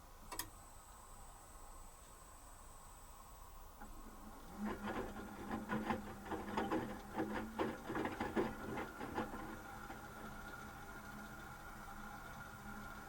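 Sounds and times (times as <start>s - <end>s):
washing machine motor hum: 3.8s - 13.0s
drum knocking and clicking: 4.6s - 10.4s.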